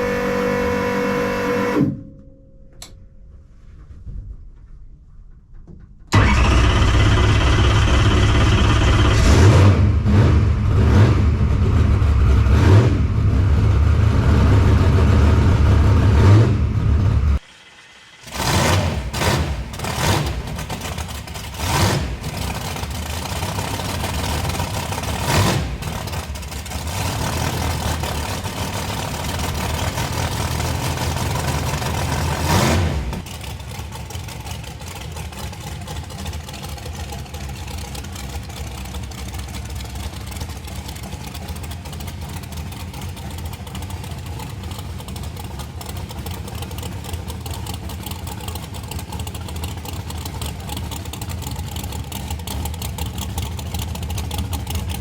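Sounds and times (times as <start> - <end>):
car engine running hard: 0.0 - 2.0, 6.1 - 55.0
loud engine bursts: 0.0 - 2.0, 6.1 - 35.3.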